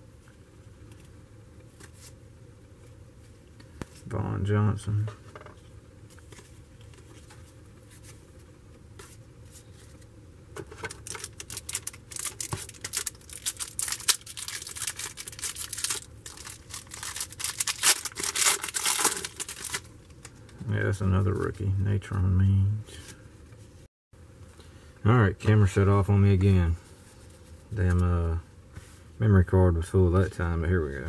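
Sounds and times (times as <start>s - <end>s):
cards being handled: 0.8s - 2.2s, 5.2s - 8.4s, 9.0s - 20.4s
card pack wrapper crinkling: 10.8s - 20.3s.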